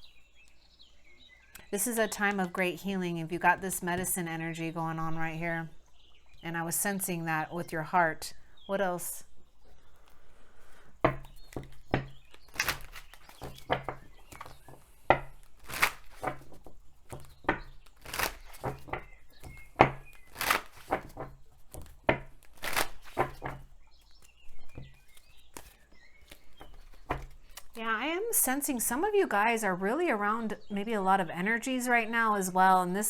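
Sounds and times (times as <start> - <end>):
cards knocking on table: 11.1 - 23.7
cards shuffling and snapping: 11.4 - 14.8, 15.4 - 24.4, 25.0 - 27.8.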